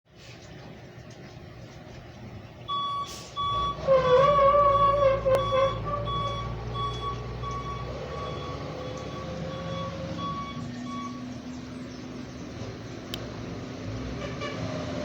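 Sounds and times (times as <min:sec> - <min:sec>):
low engine rumble: 0:00.1 - 0:15.0
truck reversing alarm beeping: 0:02.7 - 0:11.7.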